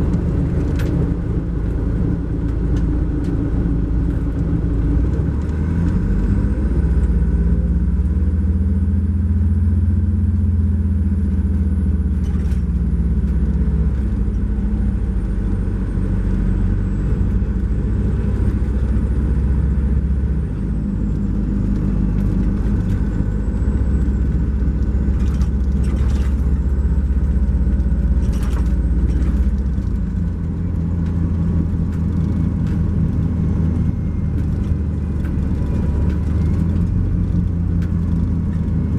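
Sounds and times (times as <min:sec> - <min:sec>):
diesel engine drone: 0:00.0 - 0:38.9.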